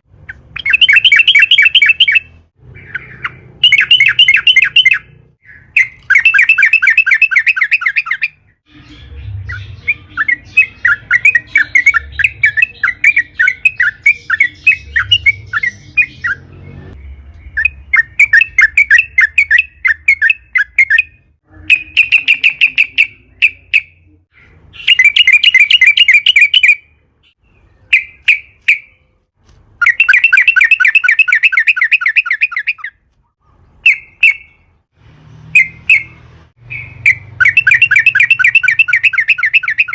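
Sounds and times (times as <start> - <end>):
bird chattering song: 0.0 - 29.1, 29.8 - 34.7, 35.6 - 39.9.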